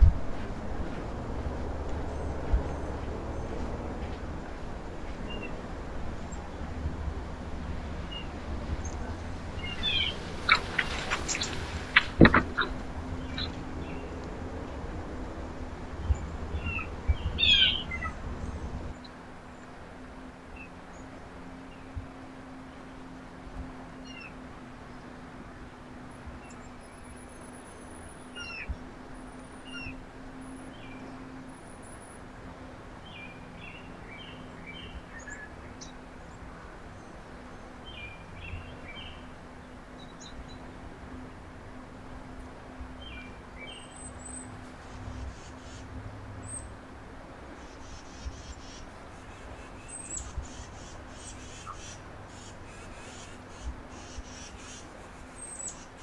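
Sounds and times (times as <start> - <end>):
birds chirping: 0.0 - 18.9, 42.4 - 56.0
steady low hum: 0.0 - 19.0.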